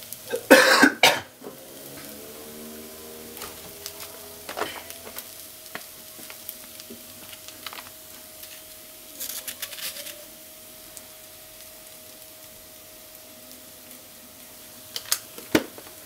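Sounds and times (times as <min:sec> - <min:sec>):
food sizzling in a pot: 0:00.0 - 0:16.0
pops and crackling: 0:03.3 - 0:10.3, 0:14.9 - 0:16.0.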